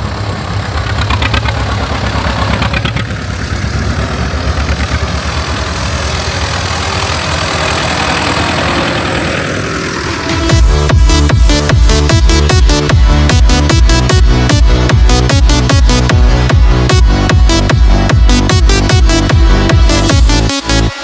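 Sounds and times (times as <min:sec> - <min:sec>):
tractor engines running: 0:00.0 - 0:21.0
music with pounding beat: 0:10.2 - 0:21.0.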